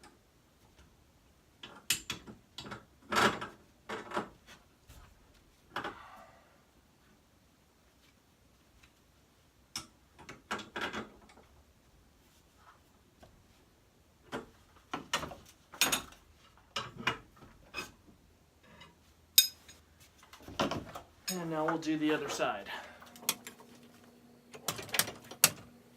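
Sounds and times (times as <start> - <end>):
hand tools clicking on metal: 18.8 - 19.8.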